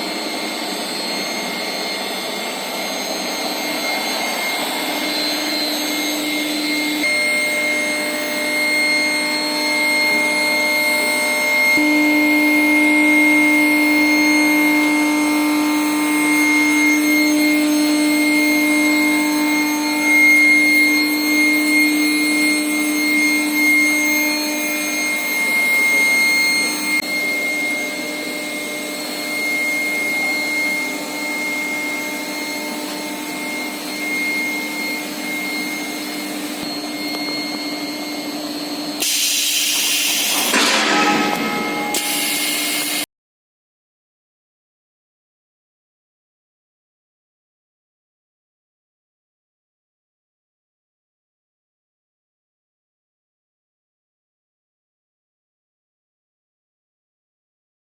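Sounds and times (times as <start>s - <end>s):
machine noise: 0.0s - 43.0s
induction furnace hum and whine: 0.0s - 43.1s.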